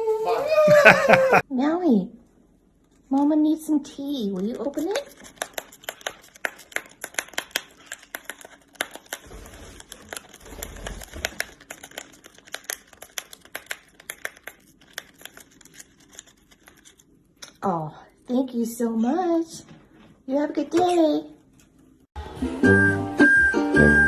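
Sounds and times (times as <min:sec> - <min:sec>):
parrot tearing paper packet: 0:04.4 - 0:17.2.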